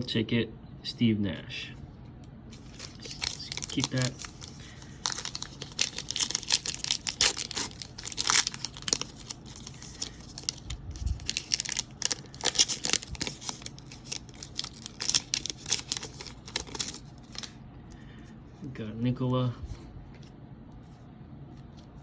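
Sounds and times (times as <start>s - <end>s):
plastic wrapper crinkling and tearing: 2.6s - 17.6s.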